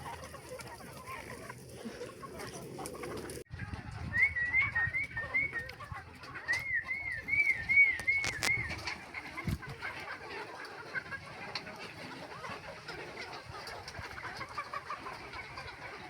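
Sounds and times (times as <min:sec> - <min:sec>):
birds whistling calls: 0:04.1 - 0:05.8, 0:06.4 - 0:08.8.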